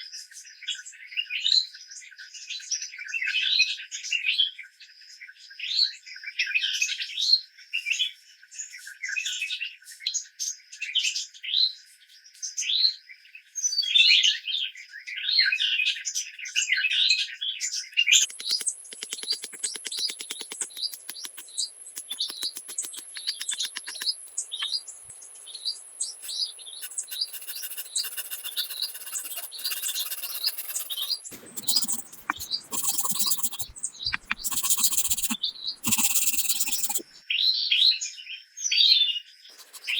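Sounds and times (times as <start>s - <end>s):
fast even ticking: 18.2s - 24.8s, 26.1s - 37.0s, 39.6s - 39.9s
birds chirping: 18.2s - 37.0s.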